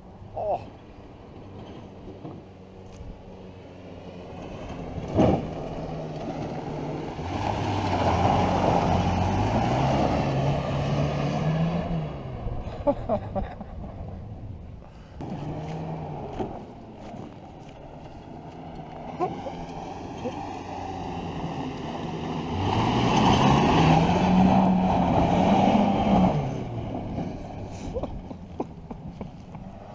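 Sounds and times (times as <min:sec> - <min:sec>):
pickup engine running: 0:13.8 - 0:20.3, 0:26.0 - 0:29.9.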